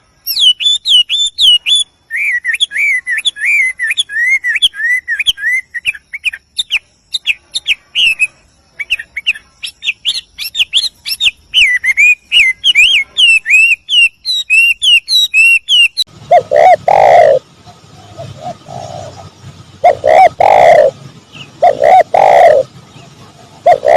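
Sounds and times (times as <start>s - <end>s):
bird low repeated calls: 0.0s - 23.9s
songbird whistled chirps: 0.1s - 23.9s.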